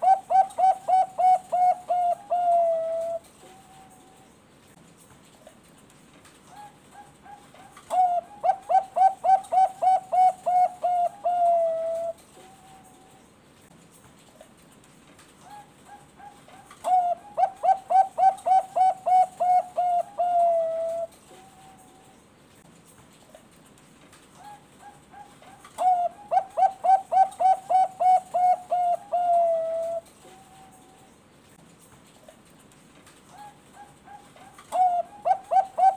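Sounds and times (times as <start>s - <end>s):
dove cooing: 0.0s - 4.3s, 6.5s - 13.1s, 15.5s - 22.1s, 24.4s - 31.2s, 33.3s - 35.9s.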